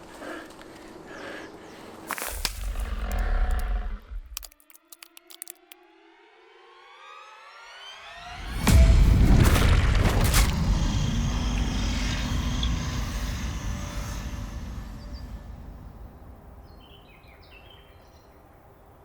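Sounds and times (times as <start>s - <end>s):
deep boom rumble: 8.3s - 17.3s.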